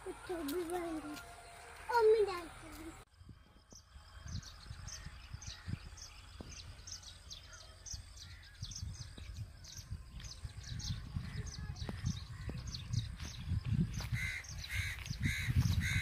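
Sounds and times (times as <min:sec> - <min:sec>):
low rumble: 0:02.9 - 0:15.9
small birds chirping: 0:03.7 - 0:16.0.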